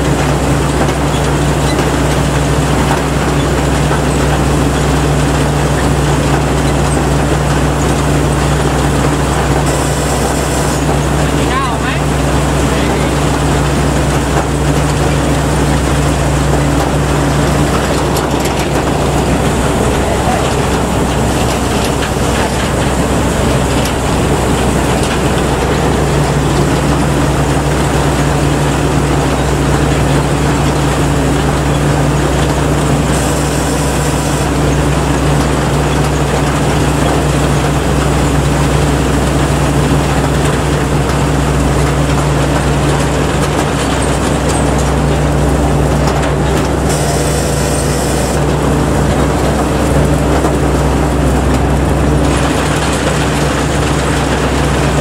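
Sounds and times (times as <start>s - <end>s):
combine harvester engine drone: 0.0s - 55.0s
machinery rushing noise: 0.1s - 55.0s.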